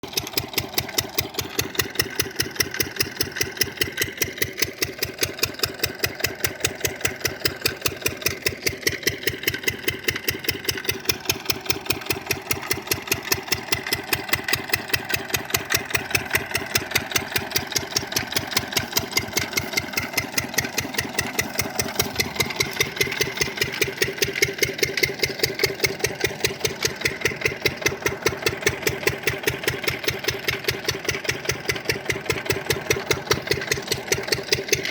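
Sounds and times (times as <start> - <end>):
diesel engine chugging: 0.0 - 34.9.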